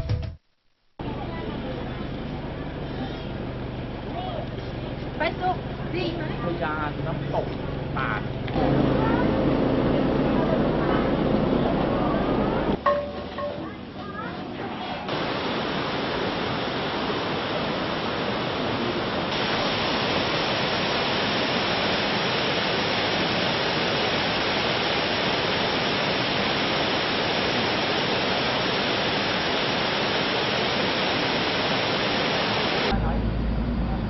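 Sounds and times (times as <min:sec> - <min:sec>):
waterfall rushing: 0:15.1 - 0:32.9.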